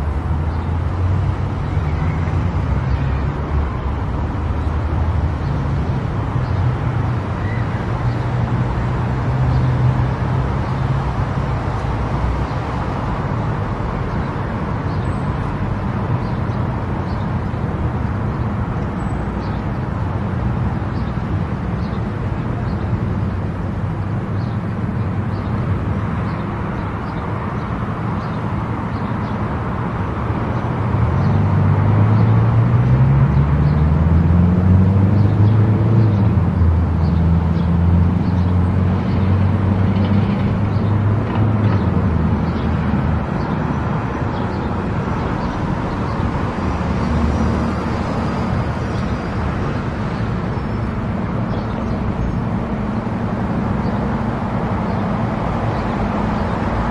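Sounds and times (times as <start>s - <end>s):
tyre and road noise: 0.0s - 56.9s
car engine drone: 28.6s - 56.9s.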